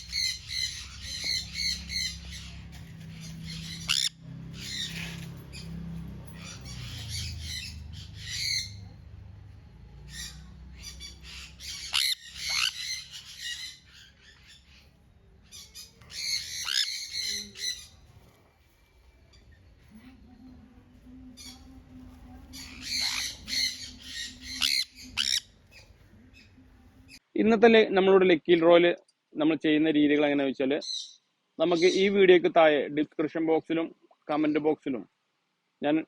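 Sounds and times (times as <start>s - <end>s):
parrots calling shrilly: 0.0s - 18.1s, 22.5s - 27.2s, 30.8s - 32.2s.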